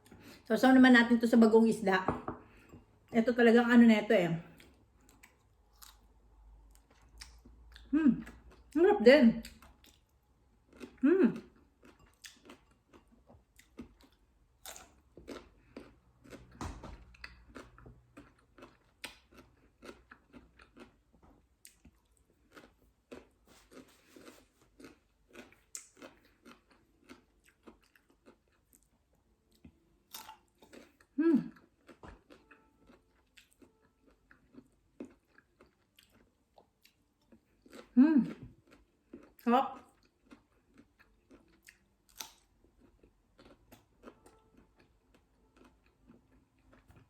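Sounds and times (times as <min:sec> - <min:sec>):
person chewing crunchy fruit: 0:04.4 - 0:08.8, 0:09.4 - 0:47.0
person humming: 0:07.9 - 0:08.3, 0:11.0 - 0:11.4, 0:31.2 - 0:31.5, 0:38.0 - 0:38.3.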